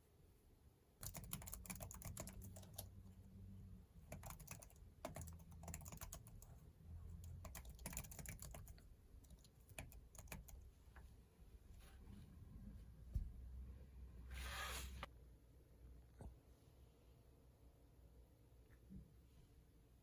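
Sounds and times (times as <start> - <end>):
low steady hum: 0.0 - 20.0
typing on computer keyboard: 1.0 - 3.0, 4.0 - 6.6, 7.2 - 10.6.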